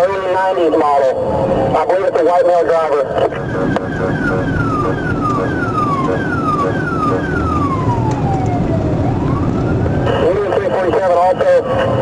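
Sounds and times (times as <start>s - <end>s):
car engine and road noise: 3.0s - 12.0s
police siren: 3.1s - 12.0s.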